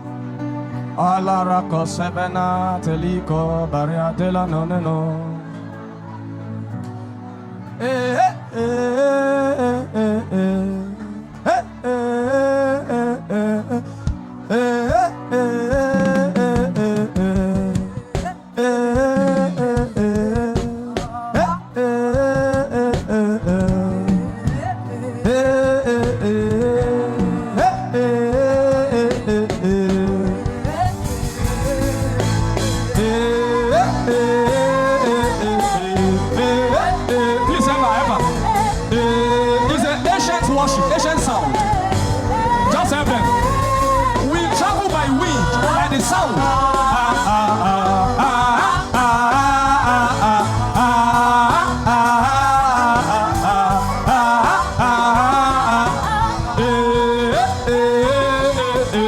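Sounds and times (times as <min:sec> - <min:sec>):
person singing wordless notes: 0:00.0 - 0:59.0
worship music with bass: 0:00.0 - 0:59.0
instrumental accompaniment with beat: 0:13.8 - 0:59.0.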